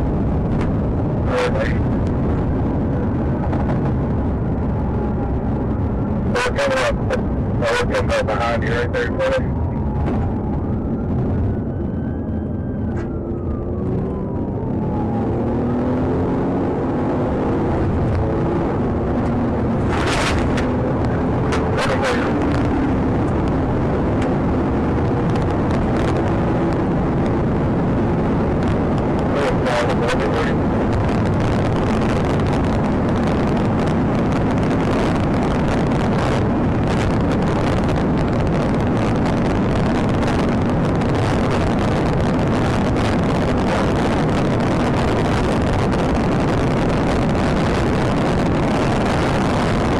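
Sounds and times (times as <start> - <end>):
car driving at high speed: 0.0 - 49.9.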